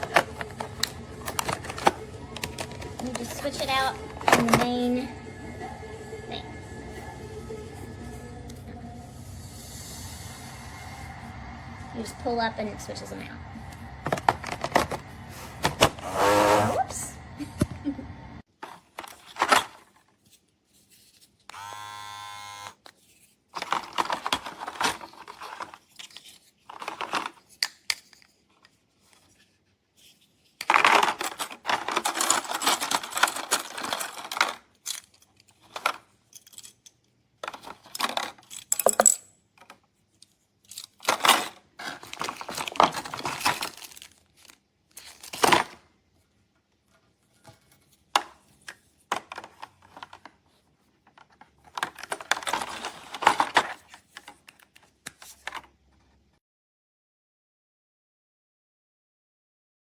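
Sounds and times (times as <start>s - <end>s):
plastic parts clattering: 0.0s - 5.1s, 13.6s - 15.9s, 18.6s - 21.7s, 22.9s - 45.9s, 46.8s - 56.2s
small electric motor buzzing: 16.0s - 16.9s, 21.5s - 22.8s.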